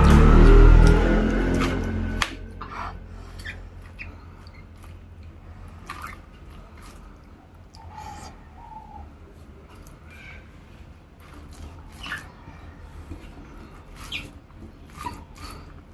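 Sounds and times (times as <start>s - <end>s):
low rumble: 0.0s - 5.7s.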